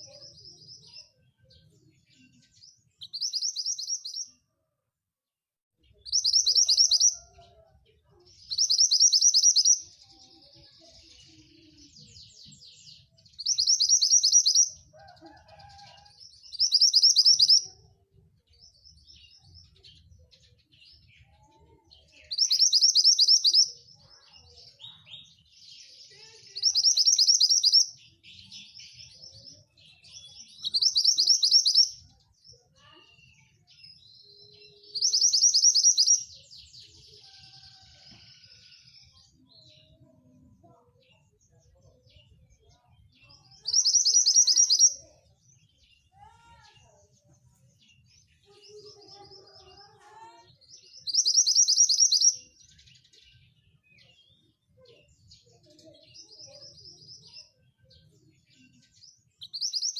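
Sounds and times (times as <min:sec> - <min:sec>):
bird twittering and chirping: 0:00.0 - 0:04.3, 0:06.0 - 0:07.3, 0:08.4 - 0:10.2, 0:10.9 - 0:15.8, 0:16.4 - 0:17.7, 0:22.2 - 0:23.8, 0:26.5 - 0:29.0, 0:29.9 - 0:32.1, 0:34.9 - 0:37.9, 0:43.6 - 0:45.0, 0:50.6 - 0:53.3, 0:55.2 - 0:59.9.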